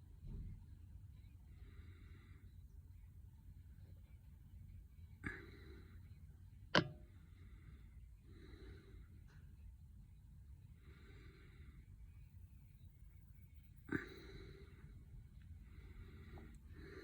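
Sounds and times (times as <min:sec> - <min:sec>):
low room rumble: 0:00.0 - 0:17.0
soft breaths: 0:00.1 - 0:17.0
sharp click: 0:06.8 - 0:07.0.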